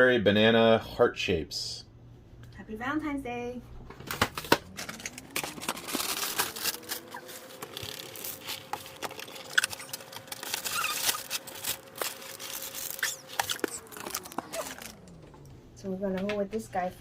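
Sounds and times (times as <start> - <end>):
faint hum: 0.0 - 17.0
packaging crinkling and tearing: 4.0 - 15.5.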